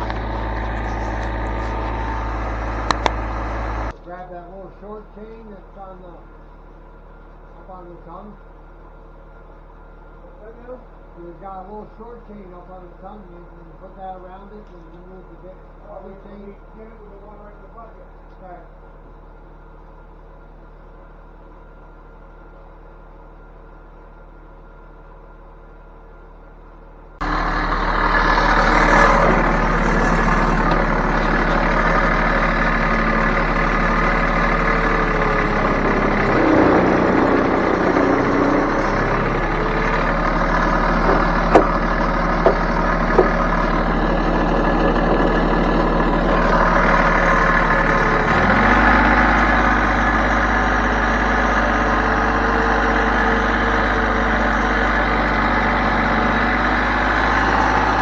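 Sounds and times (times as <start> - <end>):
heavy machine engine running: 0.0 - 58.0.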